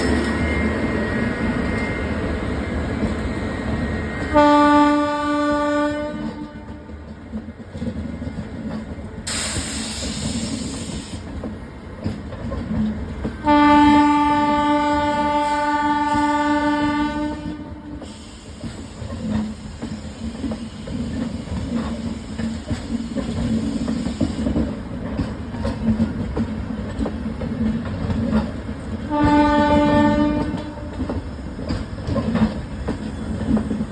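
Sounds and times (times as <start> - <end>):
train rumble and wheel clatter: 0.0 - 33.9
locomotive horn blast: 4.3 - 6.9, 13.4 - 18.0, 29.1 - 31.0
burst of hiss: 9.3 - 11.3, 18.0 - 21.2.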